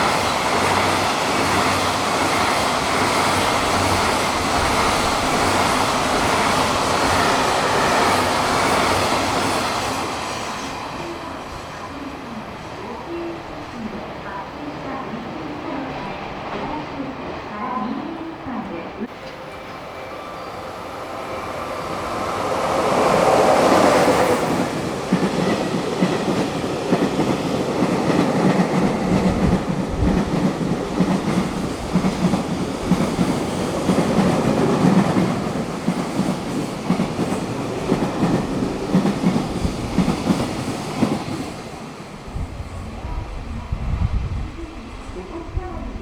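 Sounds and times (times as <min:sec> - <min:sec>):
electric locomotive passing: 0:00.0 - 0:46.0
wheels clickety-clack over rail joints: 0:23.0 - 0:41.7.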